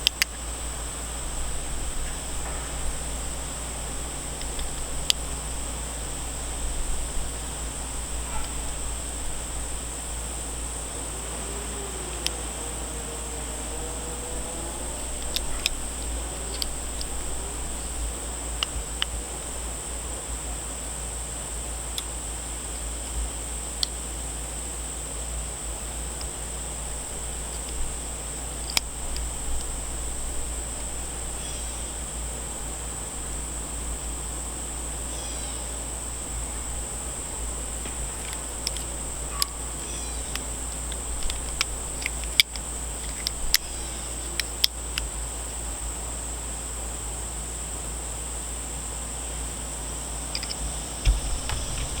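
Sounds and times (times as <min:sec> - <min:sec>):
multitool clicking shut: 0:04.3 - 0:05.5, 0:15.0 - 0:18.0, 0:18.6 - 0:19.2, 0:27.4 - 0:29.8, 0:37.6 - 0:45.1, 0:50.3 - 0:52.0.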